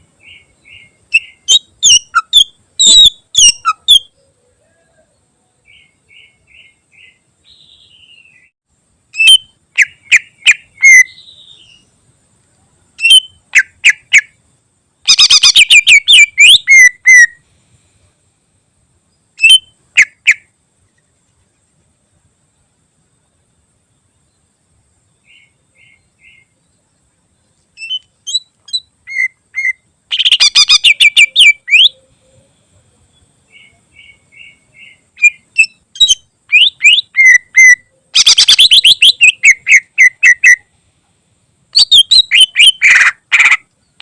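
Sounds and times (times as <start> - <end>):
soft bird twitters: 0.0 - 8.6, 9.2 - 11.9, 13.0 - 14.4, 15.1 - 17.4, 25.2 - 40.7, 41.8 - 44.0
bird singing whistled notes: 0.0 - 12.0, 13.0 - 14.4, 15.1 - 17.4, 19.4 - 20.5, 25.2 - 26.9, 27.7 - 40.7, 41.8 - 44.0.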